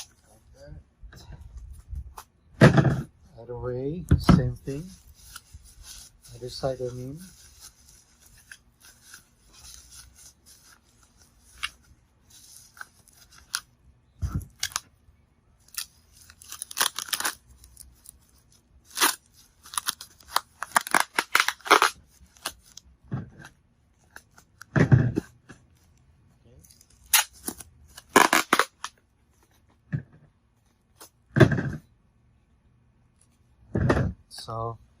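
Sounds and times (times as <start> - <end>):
packing material crinkling: 4.6 - 14.9, 15.6 - 22.9, 26.6 - 29.6.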